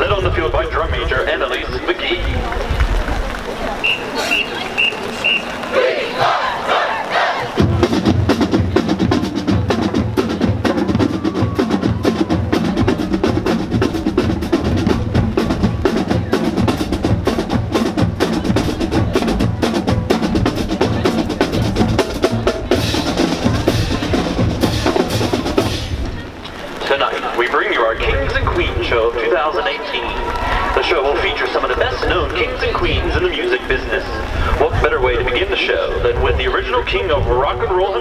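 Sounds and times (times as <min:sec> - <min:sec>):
snare drum strokes and rolls: 0:02.2 - 0:29.5
bass drums: 0:07.5 - 0:26.8.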